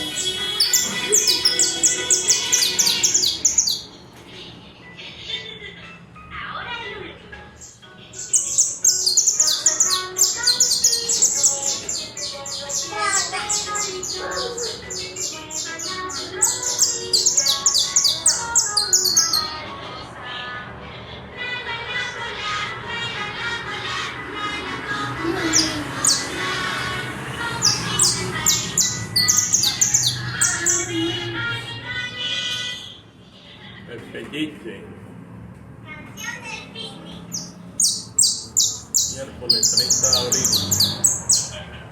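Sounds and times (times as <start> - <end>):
finch singing: 0.0 - 4.0, 7.6 - 19.6, 25.2 - 31.2, 37.3 - 41.6.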